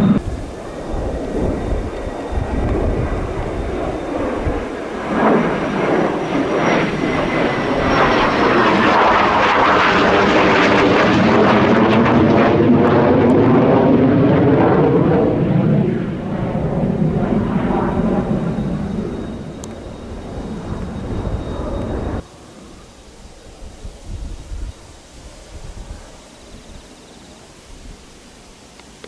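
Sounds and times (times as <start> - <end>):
jet engine passing: 0.0 - 28.6.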